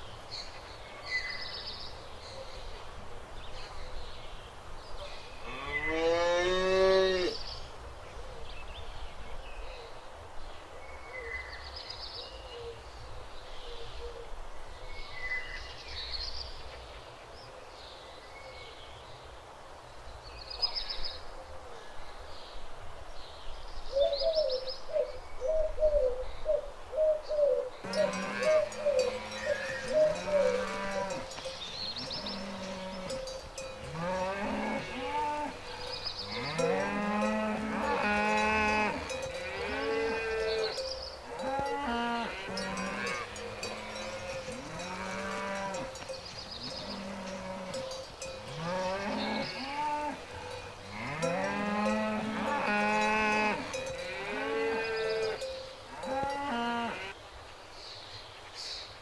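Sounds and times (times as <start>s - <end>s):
small birds chirping: 27.3s - 56.4s
cow mooing: 27.8s - 31.4s, 32.0s - 46.1s, 46.7s - 57.1s
cowbell clanging: 27.9s - 34.6s, 35.8s - 49.2s, 50.3s - 54.6s.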